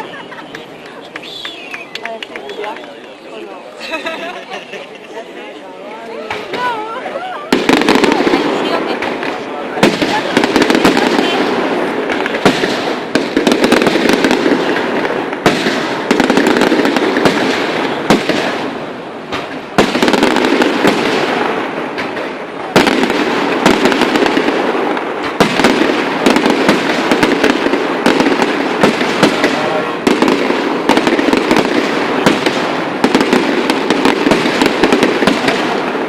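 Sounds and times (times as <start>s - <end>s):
fireworks crackling: 0.0s - 36.0s
sharp firework bangs: 7.5s - 36.0s.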